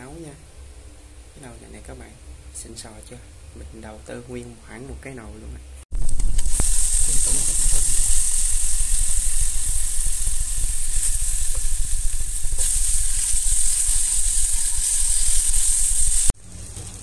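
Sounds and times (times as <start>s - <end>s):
hot oil sizzling and crackling: 5.9s - 17.0s.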